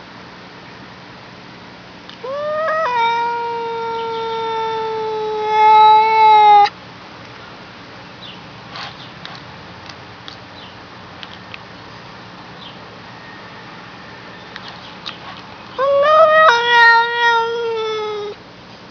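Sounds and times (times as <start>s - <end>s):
cat meowing: 2.2s - 6.7s, 15.8s - 18.4s.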